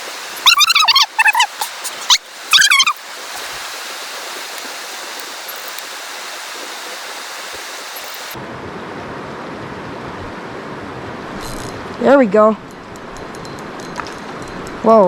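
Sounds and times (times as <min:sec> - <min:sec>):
rushing river water: 0:00.0 - 0:08.4.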